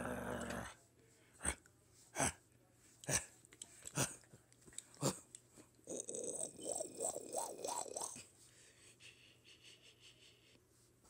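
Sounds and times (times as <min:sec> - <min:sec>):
puppy grumbling: 0:00.0 - 0:00.7.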